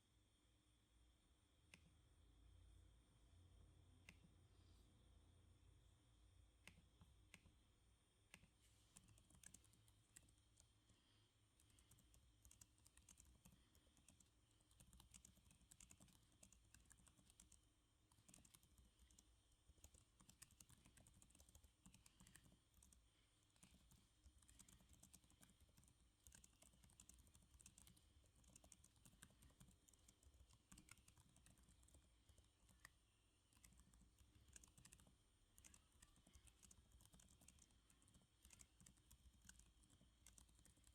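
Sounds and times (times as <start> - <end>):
typing on computer keyboard: 8.3 - 10.8, 11.6 - 40.9.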